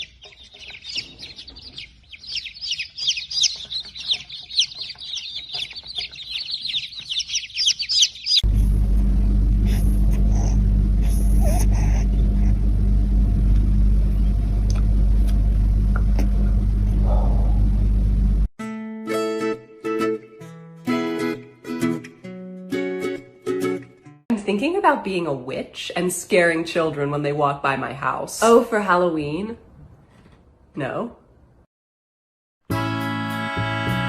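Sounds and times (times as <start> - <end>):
small birds chirping: 0.0 - 8.6
steady low hum: 8.4 - 18.5.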